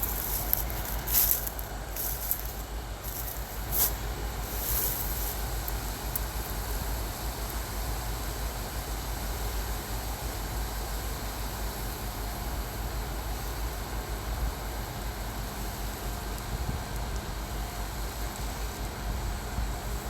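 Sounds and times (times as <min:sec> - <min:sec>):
vehicle road and engine noise: 0:00.0 - 0:08.2.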